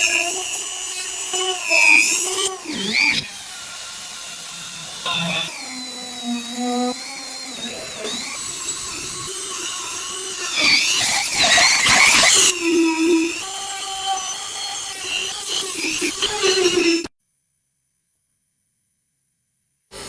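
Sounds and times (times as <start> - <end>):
small power tool whining: 0.0 - 17.1.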